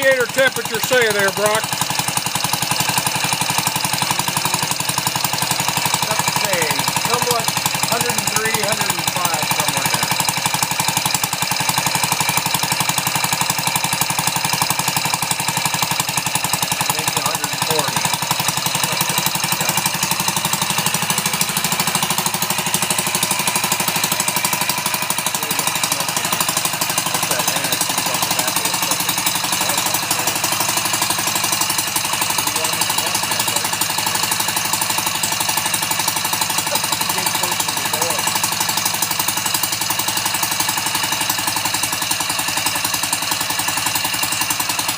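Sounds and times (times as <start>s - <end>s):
small engine running: 0.0s - 44.9s.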